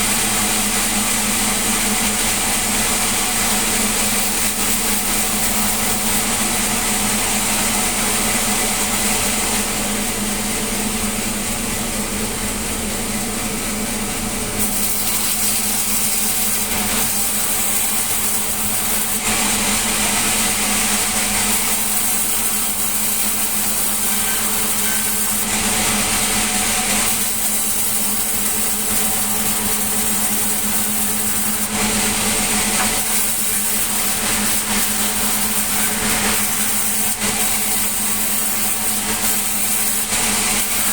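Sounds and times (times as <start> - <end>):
sawmill saw humming: 0.0 - 40.9
saw blade cutting wood: 3.6 - 7.2, 14.6 - 40.9.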